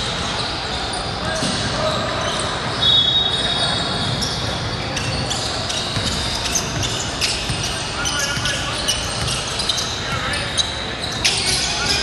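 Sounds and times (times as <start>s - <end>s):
sneakers squeaking on court: 0.0s - 12.0s
basketball bouncing: 5.8s - 9.5s.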